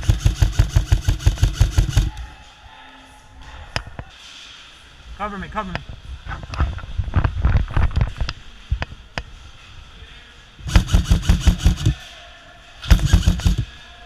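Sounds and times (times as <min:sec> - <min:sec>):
airsoft guns firing: 0:00.0 - 0:02.1, 0:10.7 - 0:12.0, 0:12.8 - 0:13.8.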